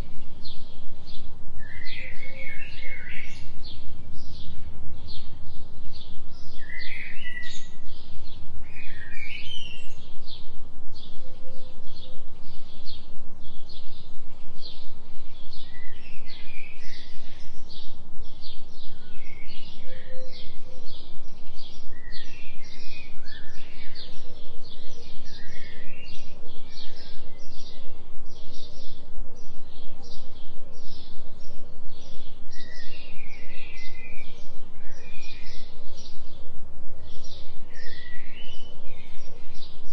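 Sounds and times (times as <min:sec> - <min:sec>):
low steady drone: 0:00.0 - 0:39.9
small birds chirping: 0:00.0 - 0:39.9.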